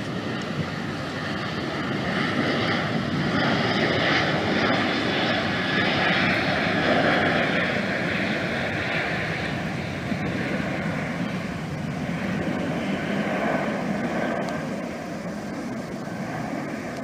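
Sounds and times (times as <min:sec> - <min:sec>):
airplane engines passing: 0:00.0 - 0:17.0.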